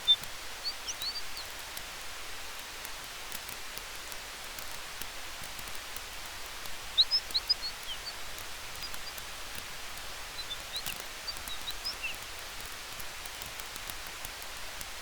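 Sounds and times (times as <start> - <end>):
high bird chirps: 0.0 - 1.5, 6.9 - 9.2, 10.2 - 12.2
campfire crackling: 0.0 - 15.0.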